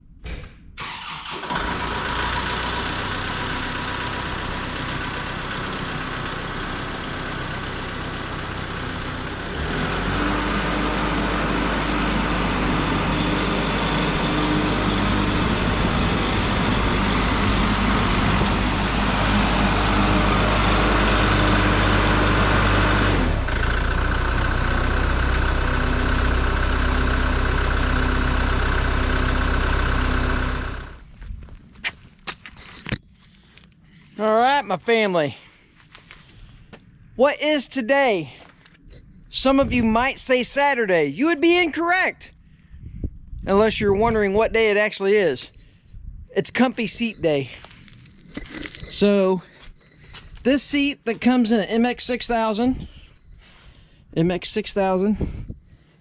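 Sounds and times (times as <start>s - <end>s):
tractor diesel engine running: 0.8s - 56.0s.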